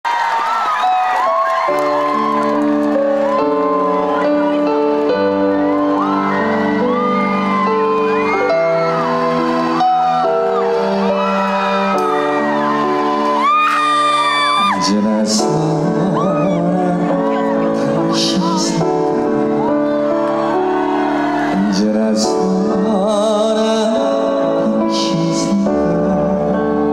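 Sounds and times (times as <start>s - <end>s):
audience whooping: 0.1s - 23.4s
live music over loudspeakers: 0.1s - 26.9s.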